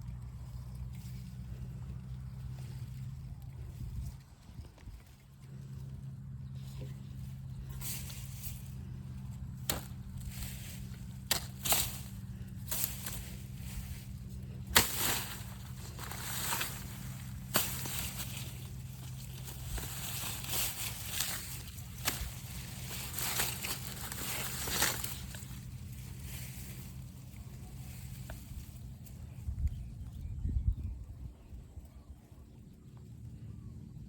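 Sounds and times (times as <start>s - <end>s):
steady low hum: 0.0s - 34.0s
rustling and scraping: 6.4s - 29.4s
sharp chops on a plant: 9.6s - 13.6s, 14.6s - 25.4s.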